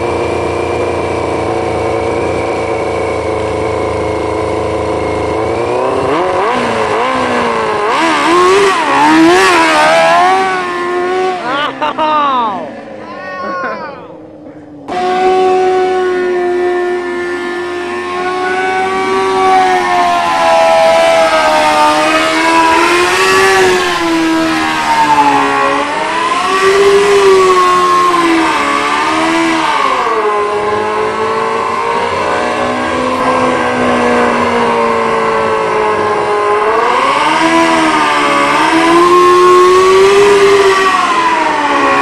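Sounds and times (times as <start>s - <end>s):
motorcycle engine idling and revving: 0.0s - 42.0s.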